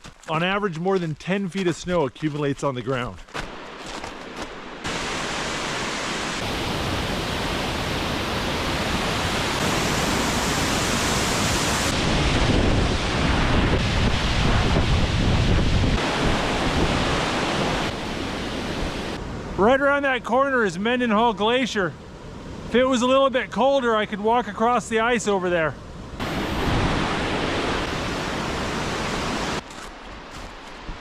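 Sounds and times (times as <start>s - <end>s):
wind buffeting microphone: 11.9s - 17.9s.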